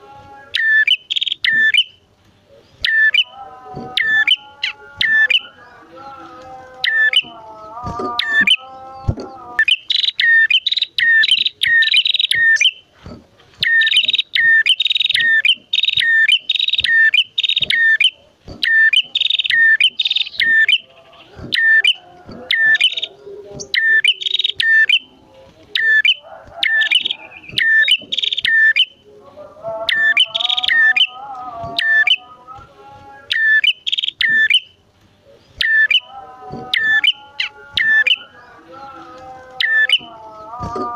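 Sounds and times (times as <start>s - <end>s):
lower warbling bird call: 0.4s - 6.0s, 6.8s - 7.4s, 8.1s - 12.9s, 13.6s - 29.0s, 29.8s - 32.3s, 33.2s - 38.7s, 39.6s - 40.2s
sharp high bird chirps: 0.5s - 2.0s, 4.0s - 5.6s, 8.2s - 8.7s, 9.6s - 12.8s, 13.6s - 25.1s, 25.8s - 29.0s, 29.9s - 31.2s, 33.2s - 34.8s, 35.6s - 36.1s.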